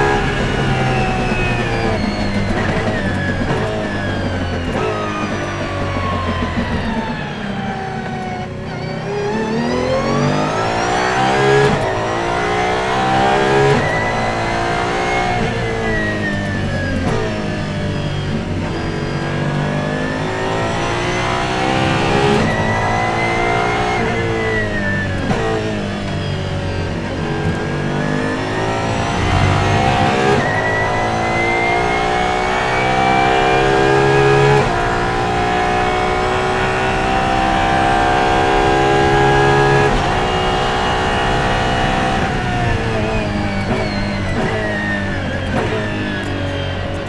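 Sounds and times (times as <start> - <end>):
engine exhaust cracks: 0.0 - 8.8, 9.7 - 47.0
racing car engine revving: 0.0 - 47.0.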